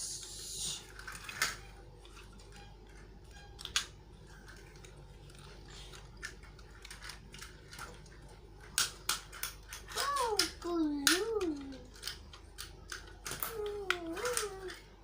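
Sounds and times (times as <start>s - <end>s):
plastic toy clicks and knocks: 0.9s - 14.9s.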